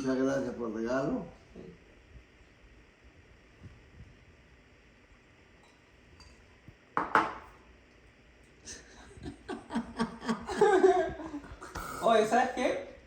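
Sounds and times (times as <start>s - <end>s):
glassware clinking: 5.6s - 6.4s, 7.0s - 7.5s.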